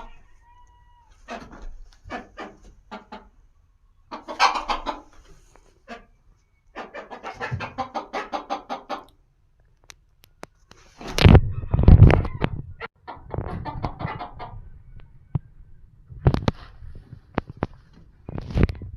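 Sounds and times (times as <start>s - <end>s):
chickens clucking: 0.0s - 9.2s, 10.4s - 15.5s.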